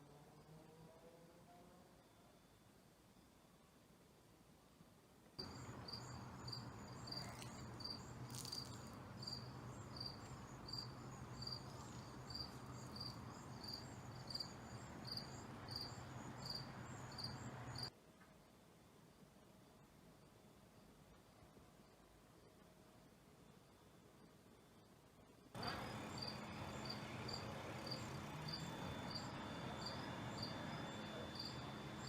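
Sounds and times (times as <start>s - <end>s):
cricket chirping: 5.4s - 17.9s, 23.5s - 32.0s
steady low hum: 25.6s - 32.0s.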